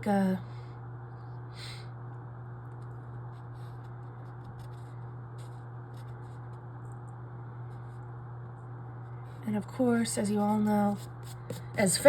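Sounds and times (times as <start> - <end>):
steady low hum: 0.0 - 12.0
faint ticks and scratches: 2.1 - 12.0.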